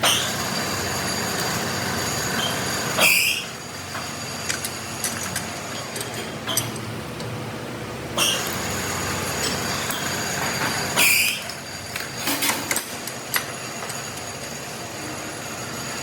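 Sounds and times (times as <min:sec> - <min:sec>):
metalworking machinery whining: 0:00.0 - 0:06.9, 0:07.8 - 0:16.0
metal-on-metal screeches: 0:02.4 - 0:03.6, 0:08.2 - 0:08.5, 0:09.4 - 0:11.6.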